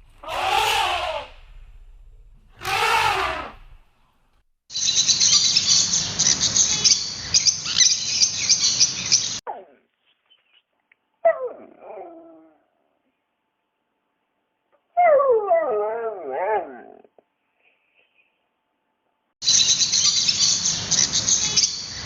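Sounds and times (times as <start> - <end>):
short pitched animal cry: 0.2 - 1.4, 2.6 - 3.8.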